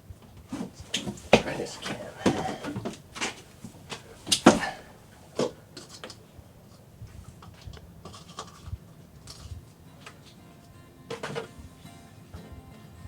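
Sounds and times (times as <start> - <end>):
clicking and scratching fittings: 7.4 - 9.6.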